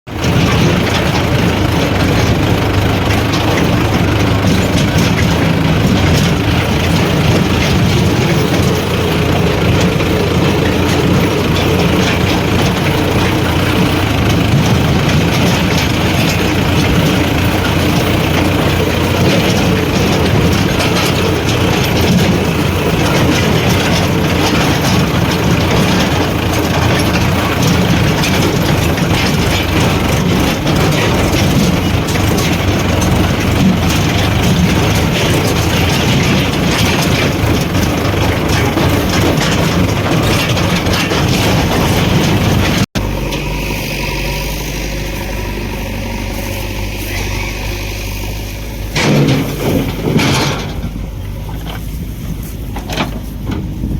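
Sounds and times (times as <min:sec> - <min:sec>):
heavy diesel engines running: 0:00.0 - 0:53.9
mechanical rattle: 0:00.1 - 0:43.4.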